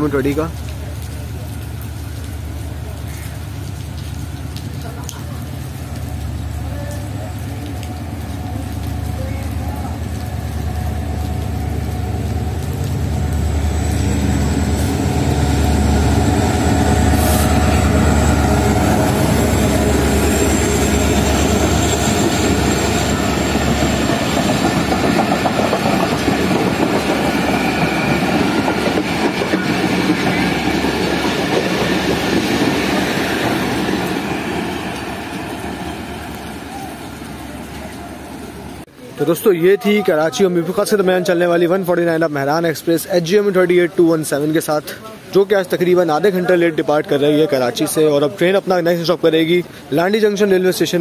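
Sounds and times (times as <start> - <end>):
diesel locomotive engine rumble: 0.0 - 39.1.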